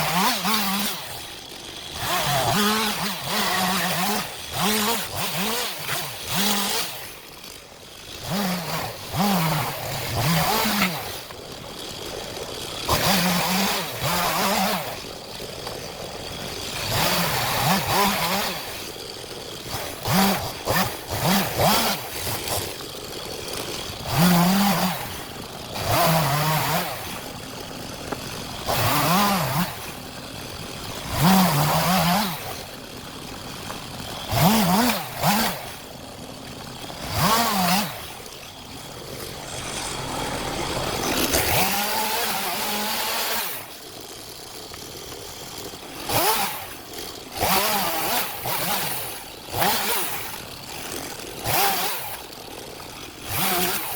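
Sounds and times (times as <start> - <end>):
chainsaw revving through logs: 0.0 - 53.9.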